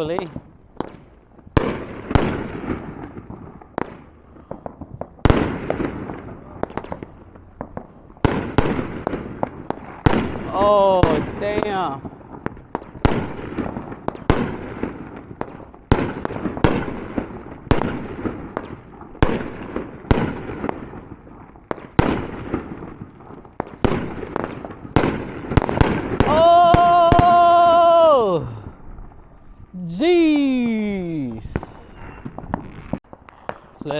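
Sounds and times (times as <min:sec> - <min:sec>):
firework bangs with crackling: 0:00.0 - 0:28.8, 0:31.4 - 0:33.9
man saying ohh: 0:26.3 - 0:28.7, 0:29.7 - 0:32.1.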